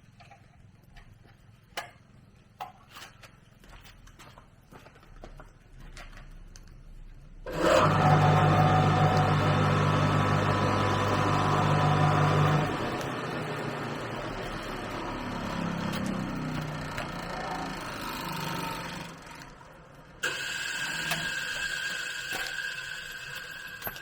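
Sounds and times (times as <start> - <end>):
machine motor humming and grinding: 7.5 - 24.0.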